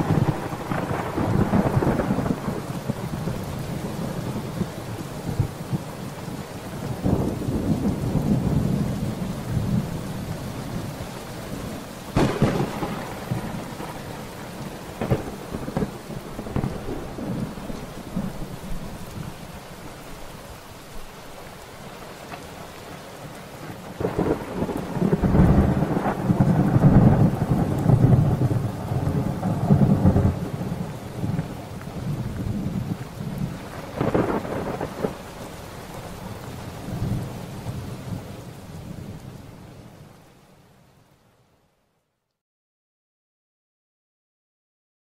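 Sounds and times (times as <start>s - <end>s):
sharp thunderclap: 0.0s - 3.0s, 12.2s - 14.0s, 14.9s - 17.6s, 24.0s - 31.4s, 33.8s - 35.2s
thunder rumbling: 0.0s - 6.2s, 6.8s - 19.3s, 23.7s - 38.3s
steady rain: 0.0s - 42.4s.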